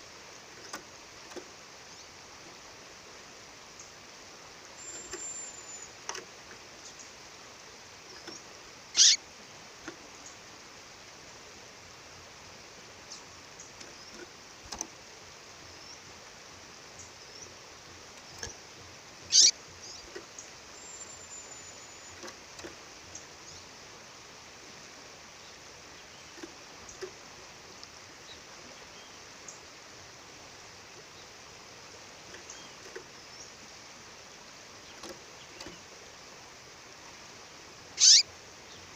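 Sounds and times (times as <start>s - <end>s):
faint bird chirps: 4.7s - 6.1s, 8.0s - 9.2s, 19.2s - 23.8s, 37.9s - 38.9s
sharp downward bird calls: 9.0s - 9.2s, 19.3s - 19.6s, 38.0s - 38.3s.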